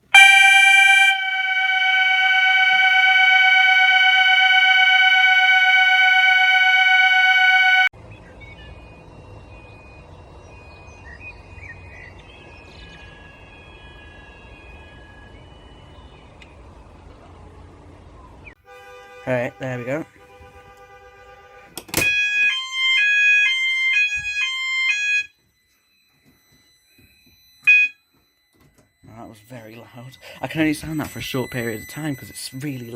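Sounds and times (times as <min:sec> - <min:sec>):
fire alarm sounder tone: 0:00.0 - 0:07.9, 0:22.4 - 0:29.2, 0:30.2 - 0:32.9.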